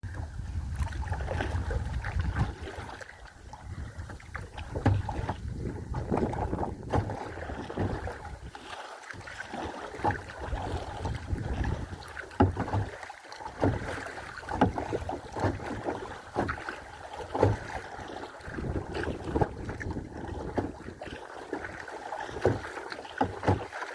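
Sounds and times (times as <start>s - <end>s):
wind buffeting microphone: 0.0s - 8.6s, 10.2s - 12.9s, 18.4s - 21.1s
water splashing and lapping: 0.0s - 23.9s.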